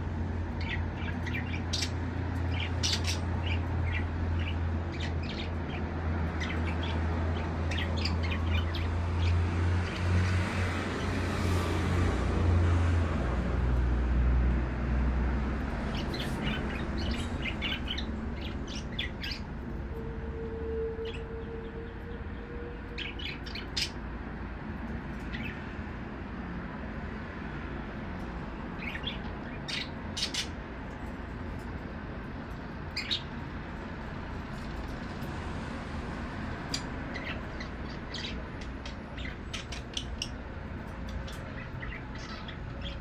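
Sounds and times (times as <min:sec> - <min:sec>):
budgerigars chirping: 0:00.6 - 0:10.0, 0:15.9 - 0:19.5, 0:28.8 - 0:31.0, 0:32.9 - 0:33.4, 0:36.6 - 0:43.0.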